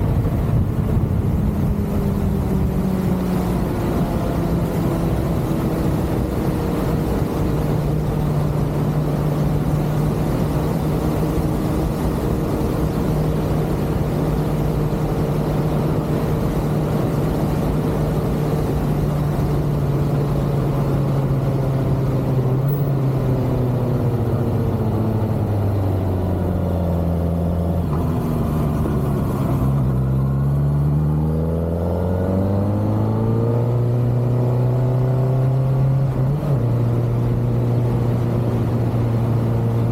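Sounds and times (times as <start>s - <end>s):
wind rush: 0.0s - 22.8s.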